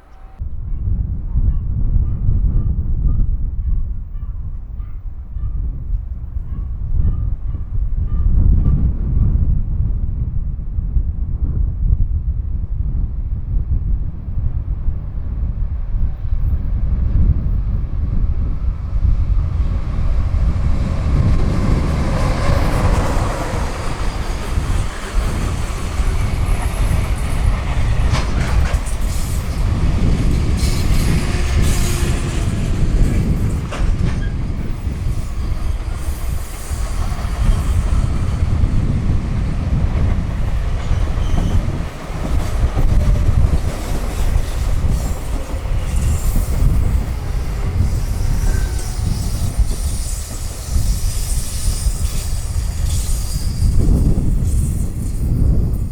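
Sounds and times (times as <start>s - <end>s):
freight train passing: 4.8s - 55.9s
wheels clattering over rails: 20.2s - 36.3s.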